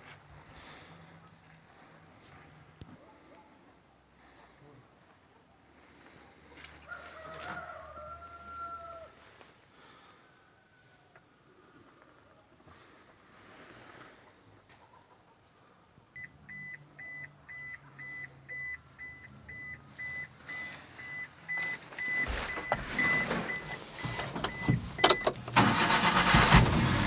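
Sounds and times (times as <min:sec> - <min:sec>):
electronic warning beeps: 0:16.2 - 0:25.4
engine running: 0:22.5 - 0:27.0
starter motor cranking: 0:22.7 - 0:27.0.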